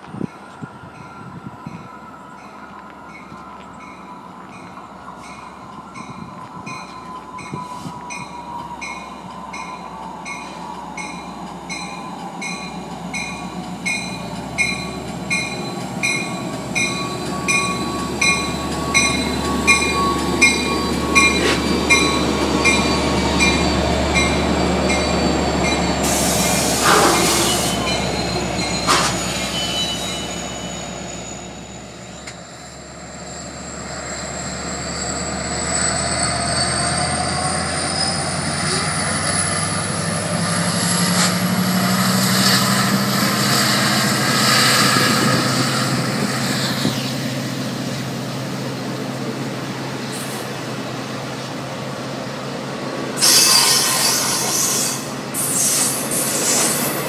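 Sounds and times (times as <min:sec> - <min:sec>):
diesel train passing: 0:00.0 - 0:57.0
locomotive bell ringing: 0:00.2 - 0:26.2, 0:26.8 - 0:32.3.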